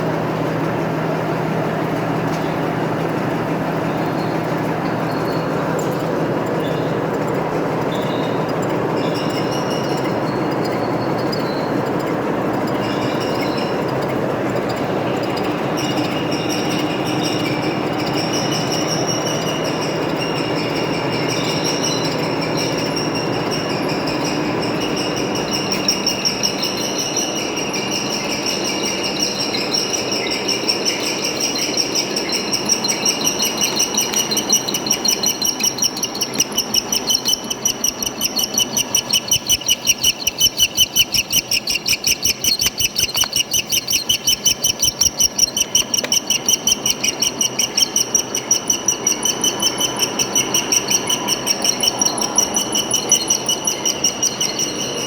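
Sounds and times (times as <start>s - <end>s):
metal lathe running: 32.1s - 55.0s.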